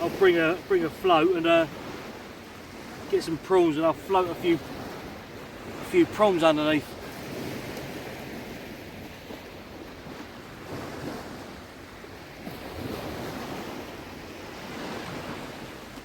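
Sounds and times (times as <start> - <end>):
sea water sloshing and lapping: 0.0 - 16.0.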